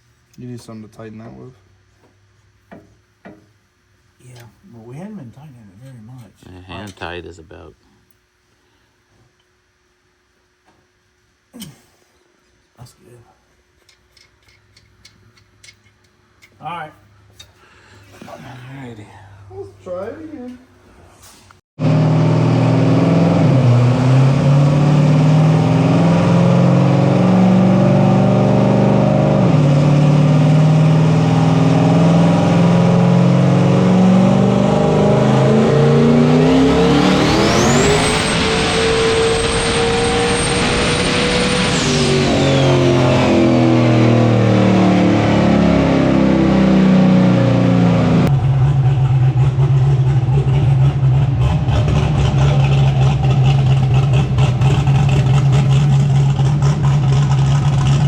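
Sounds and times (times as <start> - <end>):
turbo whine: 4.3 - 7.8, 21.8 - 58.0
car engine revving: 21.8 - 58.0.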